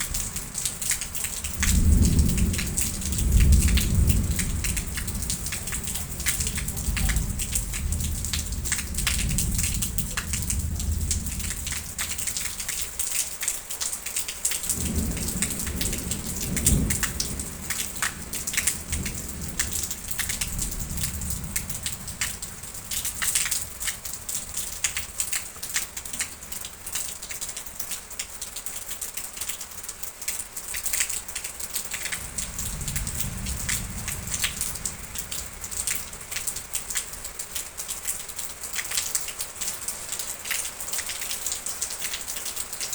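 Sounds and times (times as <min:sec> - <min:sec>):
low thunder rumbling: 0:00.0 - 0:13.1, 0:14.6 - 0:27.0, 0:31.9 - 0:37.6
rain pattering: 0:00.0 - 0:42.9.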